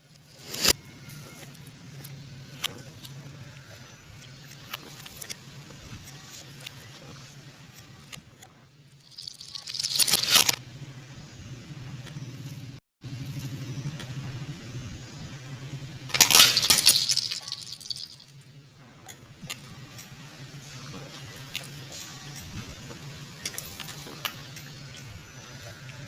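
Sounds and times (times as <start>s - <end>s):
tyre crushing an object: 16.1s - 18.2s.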